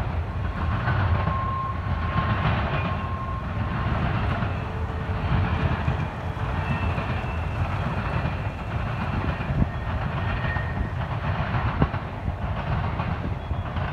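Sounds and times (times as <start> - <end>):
freight train wheels rumbling: 0.0 - 13.9.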